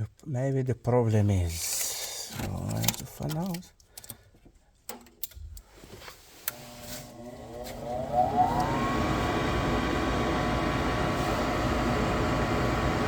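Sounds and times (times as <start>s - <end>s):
furnace motor whine and hum: 6.5s - 13.0s
fan rush: 7.2s - 13.0s
furnace motor clicks: 7.2s - 13.0s.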